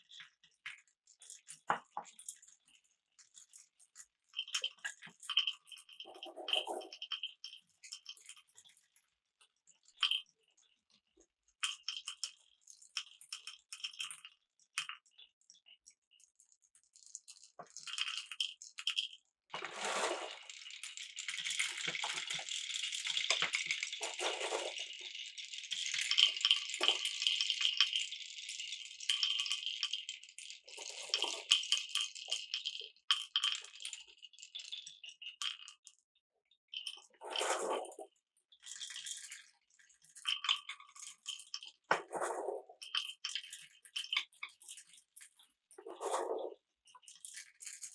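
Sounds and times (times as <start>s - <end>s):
marbles rolling on wooden run: 17.2s - 35.8s.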